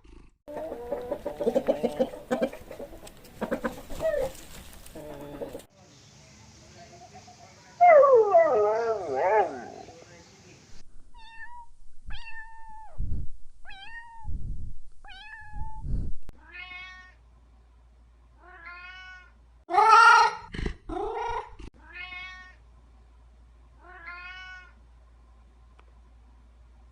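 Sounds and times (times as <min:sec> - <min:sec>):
cat meowing: 0:11.2 - 0:12.9, 0:16.4 - 0:17.2, 0:18.4 - 0:20.4, 0:21.8 - 0:22.6, 0:23.8 - 0:24.8.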